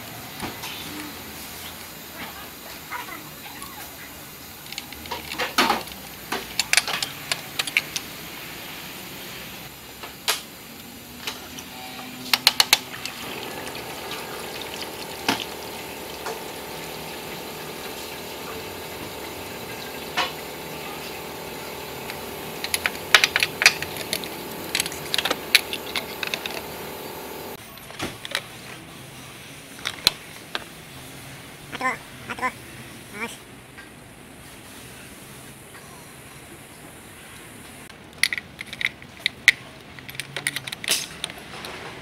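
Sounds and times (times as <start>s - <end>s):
steady hum: 4.2s - 27.6s
hand tools clicking on metal: 22.0s - 26.7s.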